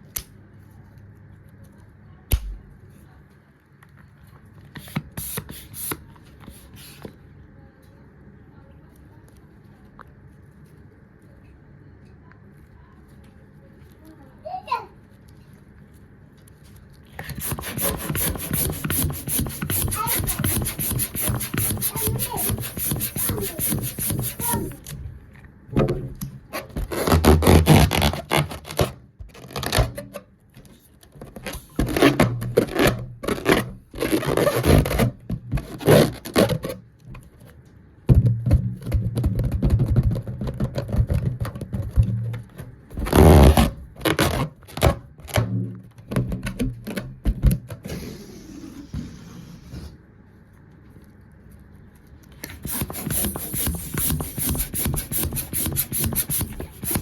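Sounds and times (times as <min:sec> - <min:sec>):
scraping and rubbing: 0:17.2 - 0:25.0, 0:25.9 - 0:36.8, 0:52.4 - 0:57.0.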